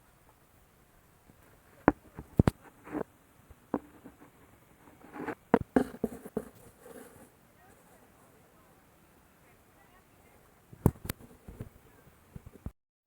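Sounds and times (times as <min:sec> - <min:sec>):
rustling: 0:00.0 - 0:12.7
sharp knocks and clicks: 0:05.2 - 0:07.2.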